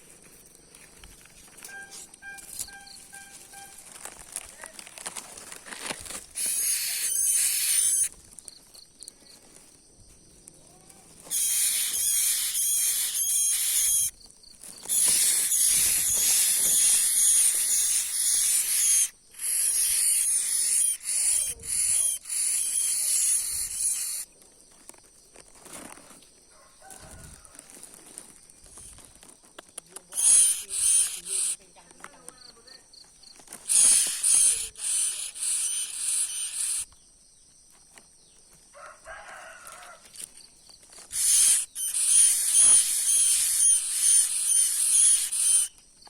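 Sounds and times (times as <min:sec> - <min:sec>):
nestlings begging chirps: 0:05.8 - 0:09.0, 0:11.1 - 0:24.3, 0:30.1 - 0:31.7, 0:33.6 - 0:37.1, 0:41.1 - 0:45.8.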